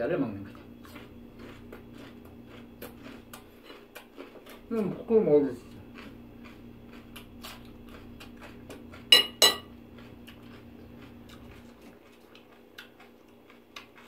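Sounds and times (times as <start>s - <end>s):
crisp chewing crunches: 0.4s - 9.1s, 9.7s - 14.0s
fork clinking on ceramic plate: 9.1s - 9.7s.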